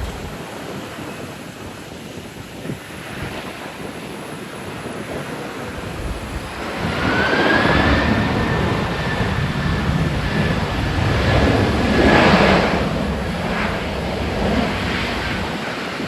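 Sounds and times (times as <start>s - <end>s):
high engine whine: 0.0s - 0.4s, 5.7s - 15.5s
jet engines roaring: 0.0s - 16.0s.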